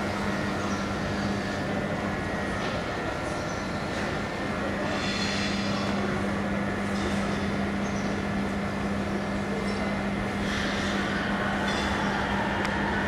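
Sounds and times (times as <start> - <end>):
train rumbling: 0.0 - 13.0
low hum: 6.0 - 13.0.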